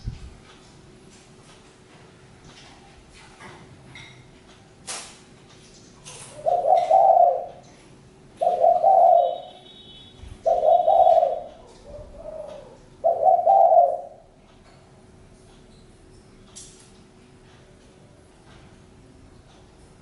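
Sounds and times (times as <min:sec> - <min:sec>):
dove cooing: 0:06.3 - 0:07.7, 0:08.4 - 0:09.6, 0:10.4 - 0:14.3.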